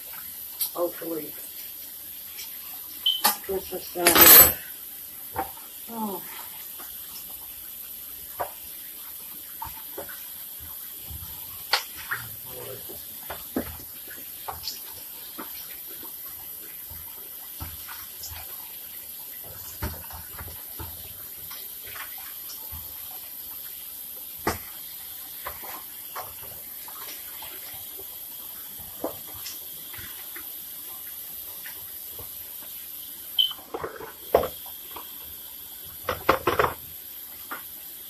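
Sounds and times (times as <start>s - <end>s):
dishes clinking and knocking: 4.0s - 4.6s, 36.1s - 36.8s
tap water running into sink: 8.1s - 37.8s.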